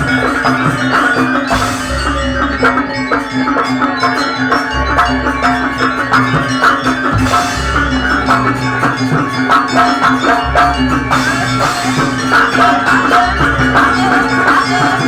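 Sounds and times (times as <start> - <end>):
drums beating: 0.0 - 15.0.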